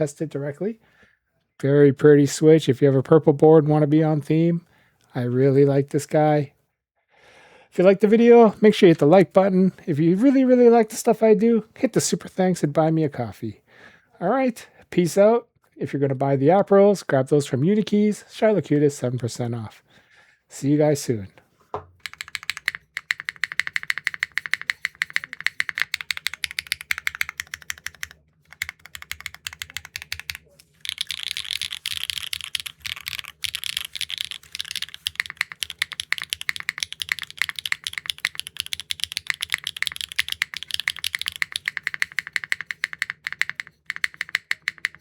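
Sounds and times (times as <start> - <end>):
mechanical keyboard typing: 22.0 - 45.0.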